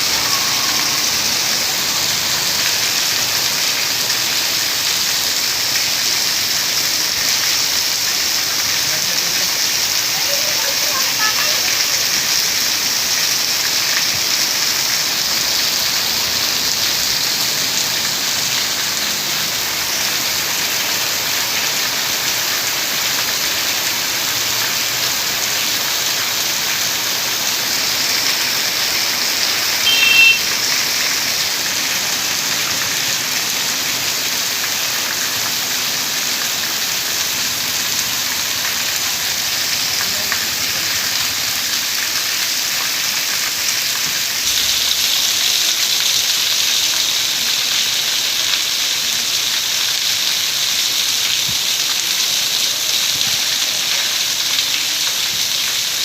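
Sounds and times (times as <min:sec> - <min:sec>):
heavy rain on hard surfaces: 0:00.0 - 0:56.0
brief high-pitched tone: 0:29.8 - 0:30.5.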